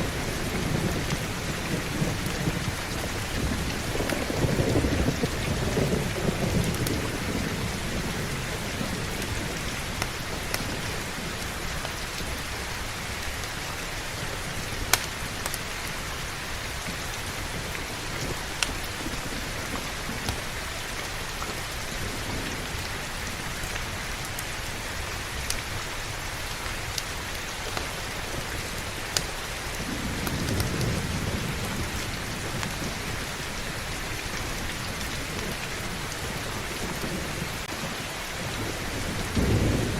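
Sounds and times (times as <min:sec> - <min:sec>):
low thunder rumbling: 0:00.0 - 0:13.2, 0:28.1 - 0:39.9
heavy rain: 0:00.0 - 0:39.9.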